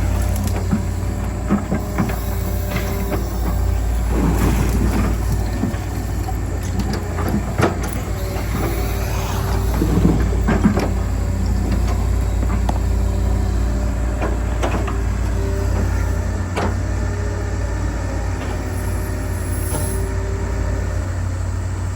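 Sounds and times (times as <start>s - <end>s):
excavator arm creaking: 0.0s - 17.1s
excavator diesel engine running: 0.0s - 21.9s.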